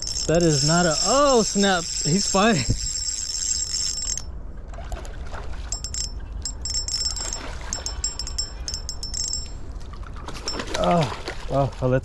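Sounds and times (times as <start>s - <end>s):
insects trilling: 0.0s - 3.9s
low rumble of wind: 0.0s - 12.0s.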